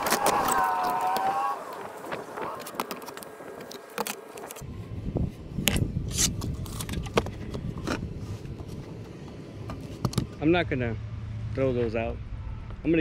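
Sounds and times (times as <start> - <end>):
wood and tools clicking and scraping: 0.0 - 4.6, 5.6 - 10.4.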